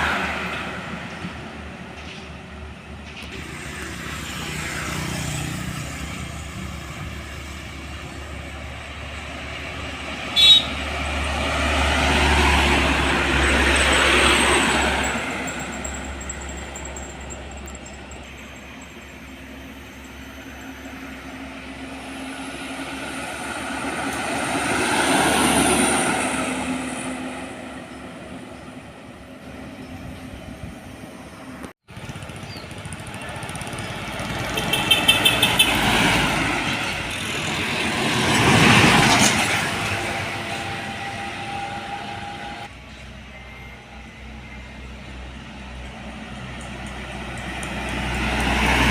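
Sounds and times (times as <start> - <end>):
heavy trucks passing: 0.0 - 48.9.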